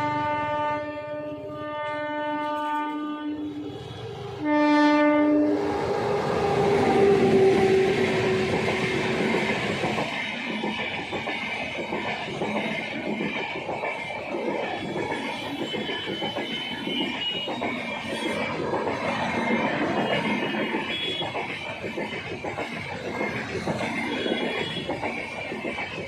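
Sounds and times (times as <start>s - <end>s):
locomotive air horn blasts: 0.0s - 3.5s, 4.4s - 5.6s.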